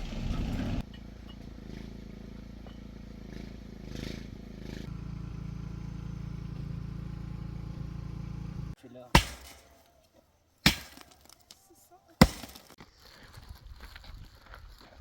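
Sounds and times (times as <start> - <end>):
engine running: 0.0 - 9.4.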